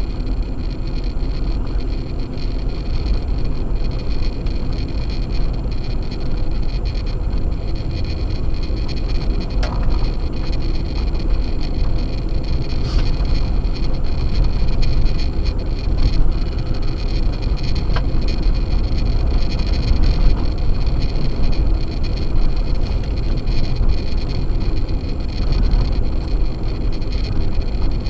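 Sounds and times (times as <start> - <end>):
car driving on snowy road: 0.0 - 28.0
low road rumble: 0.0 - 28.0.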